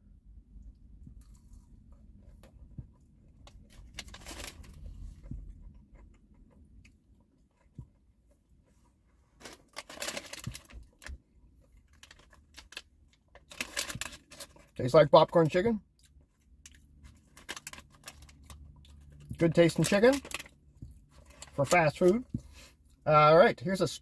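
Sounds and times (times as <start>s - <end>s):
paper packaging crackling: 3.5s - 4.8s, 9.4s - 11.1s, 11.9s - 14.8s, 17.2s - 18.6s, 19.4s - 20.6s.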